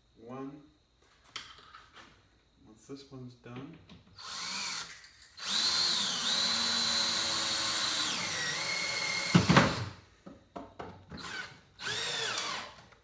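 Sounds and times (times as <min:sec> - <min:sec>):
power drill driving a screw: 0:04.2 - 0:10.0, 0:11.2 - 0:12.8.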